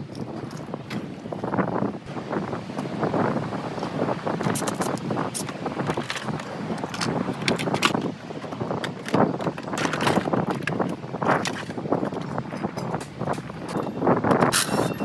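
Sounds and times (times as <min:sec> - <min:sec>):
metal tools clanking: 0:04.4 - 0:15.0.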